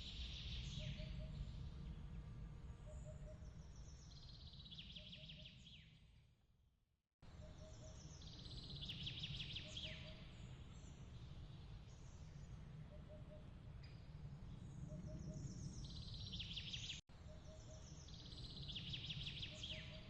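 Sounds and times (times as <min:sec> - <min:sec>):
songbird singing trills: 0:00.0 - 0:02.0, 0:02.8 - 0:06.0, 0:07.3 - 0:20.0
steady low rumble: 0:00.2 - 0:04.0.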